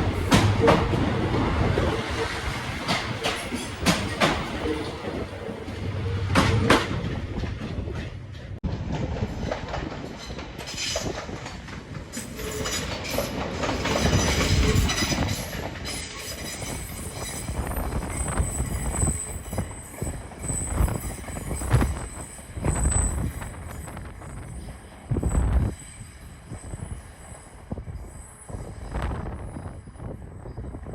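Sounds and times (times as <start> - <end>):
train wheels knocking over rail joints: 0.0 - 5.0
high wheel squeal: 14.0 - 30.7.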